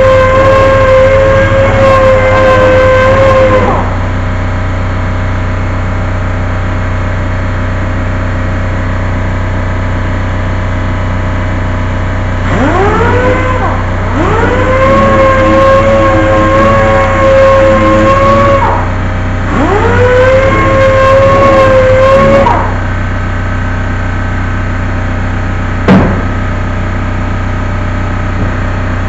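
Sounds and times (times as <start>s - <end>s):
constant low hum: 0.0s - 29.0s
power tool motor whining: 19.5s - 22.8s.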